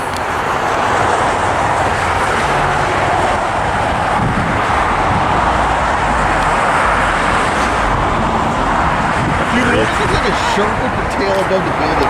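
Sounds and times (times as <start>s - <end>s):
jet engine roar: 0.0s - 12.0s.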